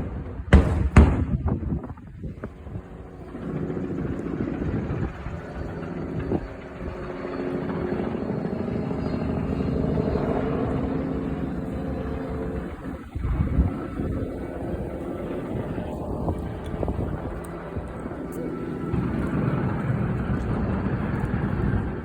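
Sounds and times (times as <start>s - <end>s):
deep booms: 0.0s - 2.0s
engine drone: 1.8s - 22.0s.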